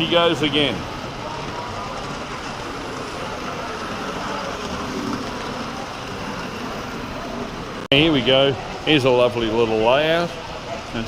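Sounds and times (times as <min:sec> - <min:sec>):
model train rolling rumble: 0:00.0 - 0:07.9
background hubbub of a crowd: 0:00.0 - 0:11.0.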